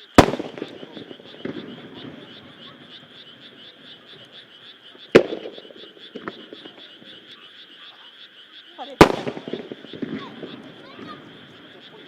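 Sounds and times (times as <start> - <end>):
firework crack: 0.0 - 7.3, 8.8 - 12.0
frogs croaking in chorus: 0.0 - 12.0
firework boom: 0.2 - 3.2, 9.0 - 11.9.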